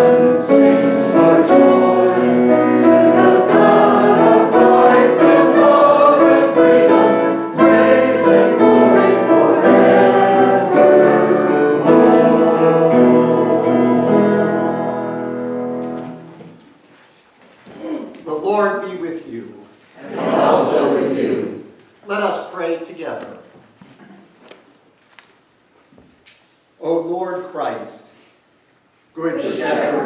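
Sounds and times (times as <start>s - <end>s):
congregation singing a hymn: 0.0s - 16.5s, 20.0s - 21.8s, 29.2s - 30.0s
instrumental accompaniment: 0.0s - 16.7s.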